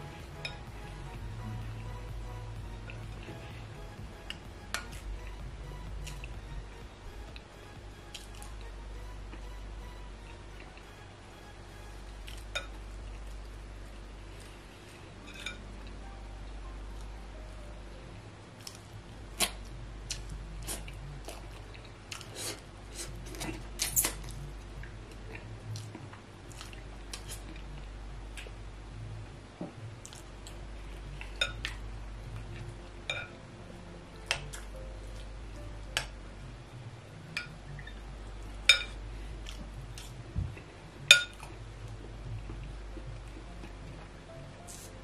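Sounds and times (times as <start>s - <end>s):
steady low hum: 0.0s - 45.0s
chewing and mouth noises: 18.6s - 27.8s.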